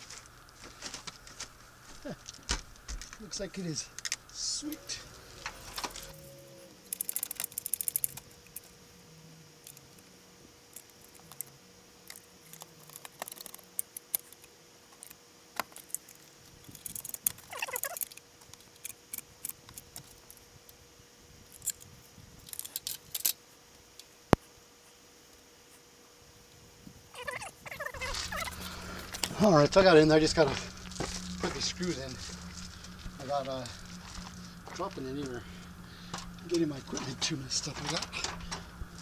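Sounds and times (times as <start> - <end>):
clicks rattles and scrapes: 0.0 - 6.2, 12.1 - 14.4, 27.2 - 39.0
faint steady hum: 0.0 - 39.0.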